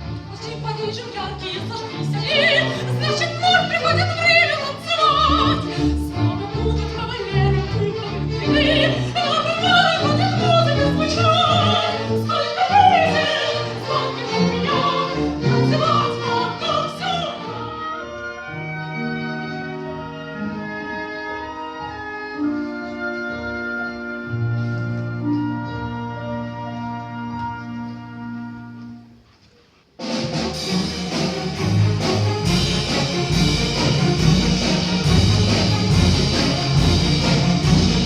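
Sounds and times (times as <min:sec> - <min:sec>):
orchestral accompaniment: 0:00.0 - 0:38.0
operatic singing with vibrato: 0:00.3 - 0:18.6.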